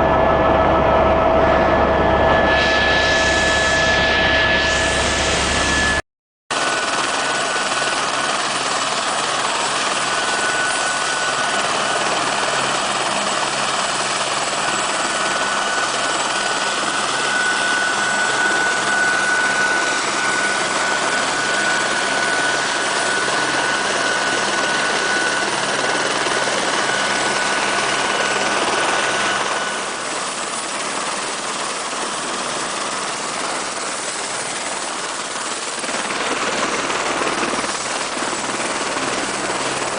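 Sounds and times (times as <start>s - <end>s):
faint high whine: 0.0s - 6.0s, 9.2s - 30.2s
helicopter engine and rotor noise: 0.0s - 39.9s.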